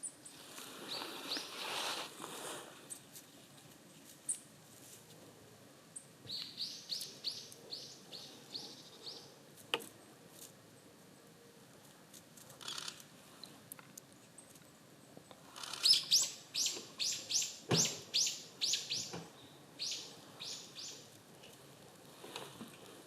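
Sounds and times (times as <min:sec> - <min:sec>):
songbird chirping: 0:00.0 - 0:02.0, 0:05.9 - 0:11.6, 0:12.6 - 0:21.6
rustling in dry grass: 0:00.1 - 0:05.4, 0:20.2 - 0:23.0.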